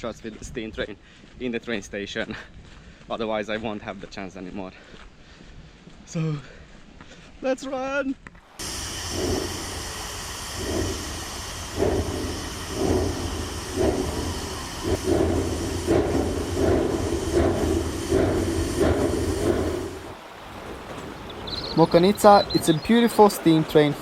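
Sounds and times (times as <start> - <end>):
steam hiss: 8.5 - 24.0
steam locomotive chuffing: 8.5 - 24.0
low rumble: 8.6 - 21.4.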